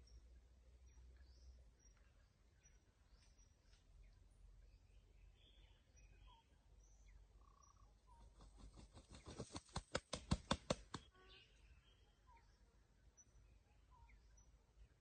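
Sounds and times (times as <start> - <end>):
faint bird chirps: 0.0 - 9.7, 10.9 - 15.0
rooster wings flapping: 8.4 - 11.0.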